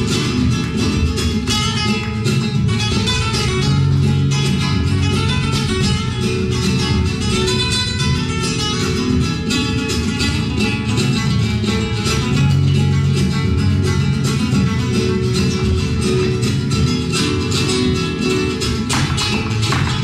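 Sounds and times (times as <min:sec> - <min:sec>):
flamenco acoustic guitar: 0:00.0 - 0:20.0.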